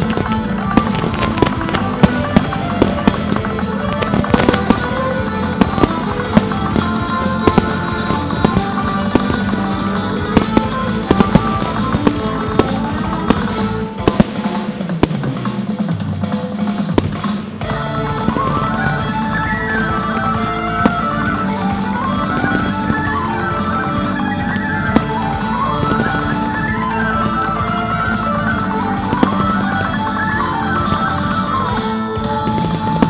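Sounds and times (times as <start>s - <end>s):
fireworks bangs and crackles: 0.0s - 33.0s
loud music: 0.0s - 33.0s.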